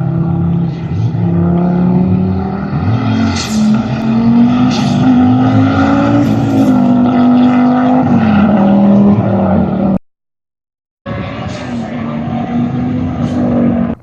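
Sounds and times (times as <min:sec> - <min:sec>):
rally car engine running hard: 0:00.0 - 0:10.0.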